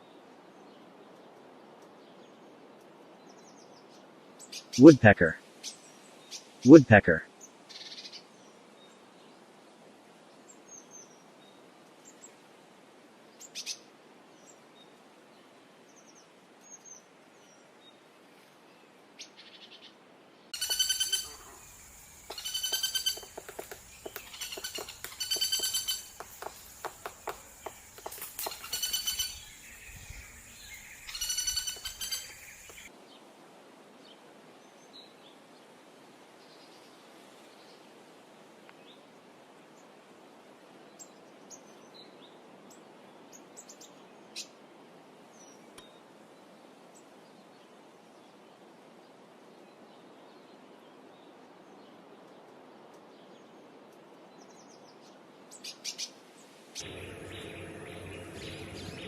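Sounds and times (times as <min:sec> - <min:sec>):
woodpecker tapping: 0:20.6 - 0:29.8, 0:30.6 - 0:32.9
faint bird calls: 0:20.6 - 0:32.9
woodpecker calling: 0:20.6 - 0:32.9.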